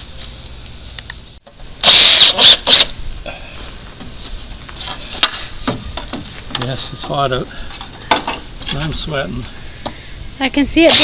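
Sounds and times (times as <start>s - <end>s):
power drill driving screws: 1.8s - 2.9s.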